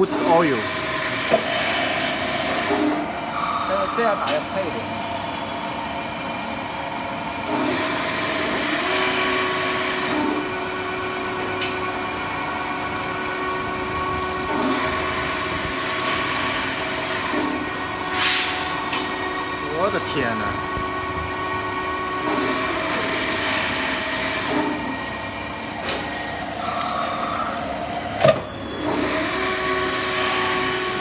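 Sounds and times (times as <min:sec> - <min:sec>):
lathe machine hum: 0:00.0 - 0:28.2
steady squealing tone: 0:13.4 - 0:28.8.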